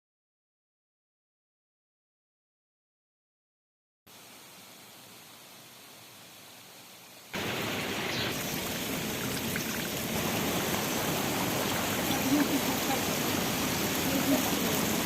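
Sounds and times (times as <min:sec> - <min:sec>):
rushing water: 0:04.1 - 0:15.0.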